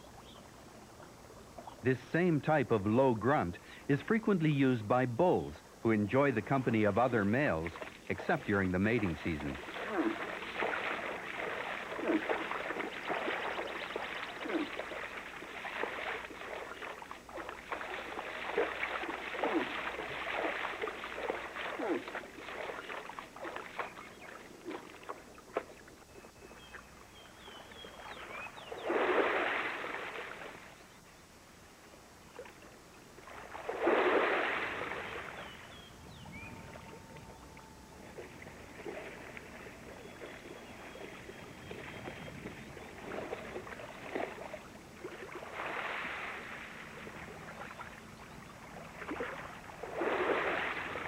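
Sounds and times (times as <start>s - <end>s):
faint bird chirps: 0.0s - 0.5s, 22.6s - 29.0s, 34.9s - 38.4s, 39.5s - 43.1s
water splashing and sloshing: 0.0s - 30.9s, 31.7s - 51.0s.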